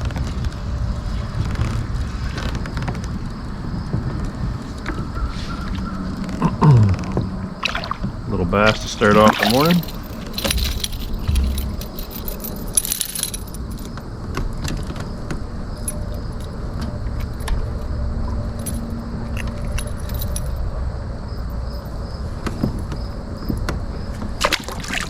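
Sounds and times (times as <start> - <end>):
low rumble of handling noise: 0.0 - 17.4
metallic jingling of fishing tackle: 8.8 - 13.9
clicks of fishing tackle: 9.1 - 13.4.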